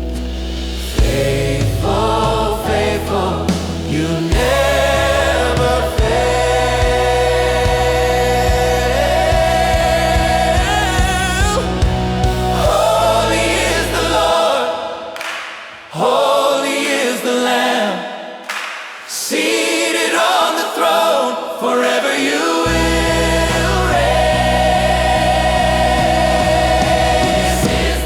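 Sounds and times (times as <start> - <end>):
bass and beat: 0.0 - 14.2, 22.7 - 28.0
choir singing gospel song: 0.0 - 28.0.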